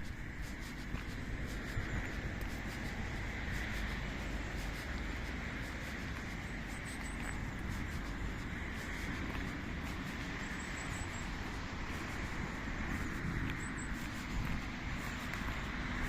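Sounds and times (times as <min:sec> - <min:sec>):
road traffic noise: 0:00.0 - 0:16.0
wind rumbling on microphone: 0:00.0 - 0:16.0.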